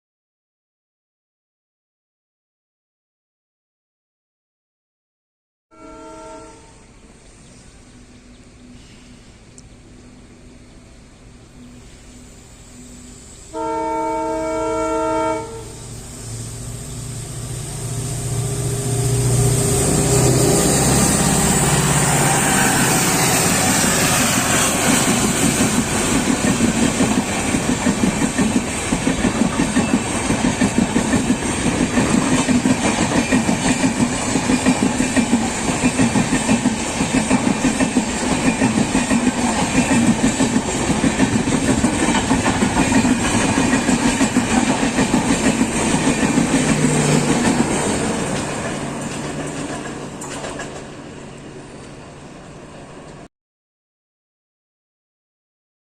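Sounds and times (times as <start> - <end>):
locomotive horn chord: 5.7 - 7.0, 12.8 - 16.3
diesel locomotive engine: 5.8 - 53.3
train wheels clickety-clack: 19.9 - 51.0.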